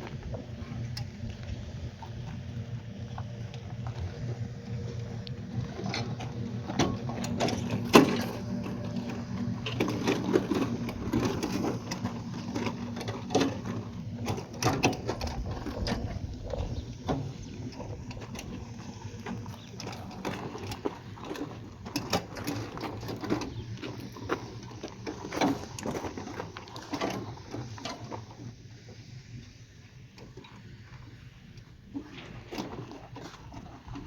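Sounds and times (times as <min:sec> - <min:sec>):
machine humming: 0:00.3 - 0:21.7.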